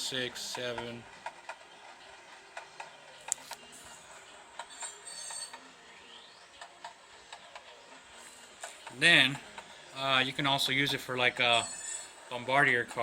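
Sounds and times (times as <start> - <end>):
brief high squeal: 11.6 - 12.2.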